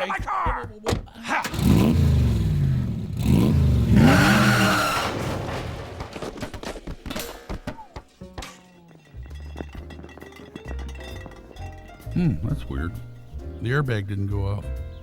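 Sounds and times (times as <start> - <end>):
cartoon car engine revving: 1.4 - 5.4.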